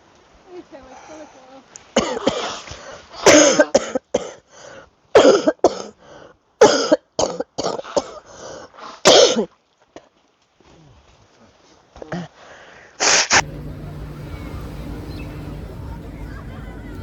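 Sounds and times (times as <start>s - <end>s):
person coughing: 3.3s - 4.4s, 9.1s - 9.5s.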